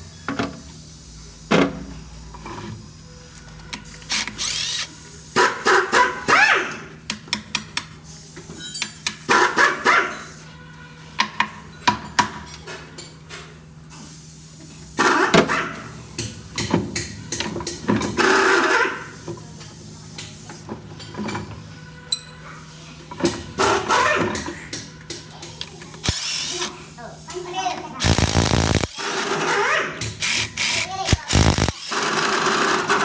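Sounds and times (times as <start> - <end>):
steady low hum: 28.0 - 29.0, 31.1 - 31.8.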